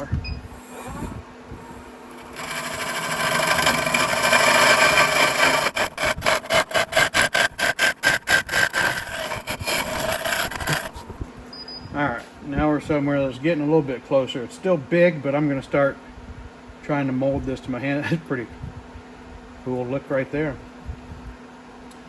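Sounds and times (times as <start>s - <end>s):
wood lathe cutting scraping hiss: 0.6s - 11.0s.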